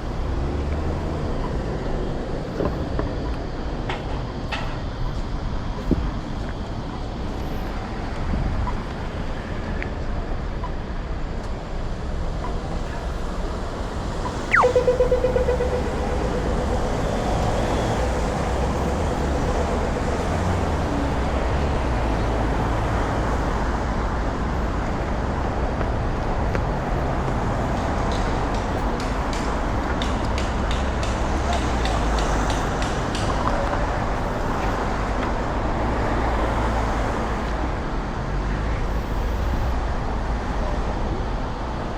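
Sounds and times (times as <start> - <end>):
city traffic noise: 0.0 - 41.9
short squeal sliding down: 14.2 - 18.2
pulsing hum: 14.2 - 18.3.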